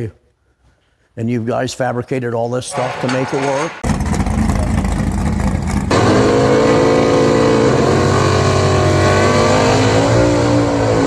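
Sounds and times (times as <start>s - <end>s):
car engine at high revs: 3.9s - 11.0s.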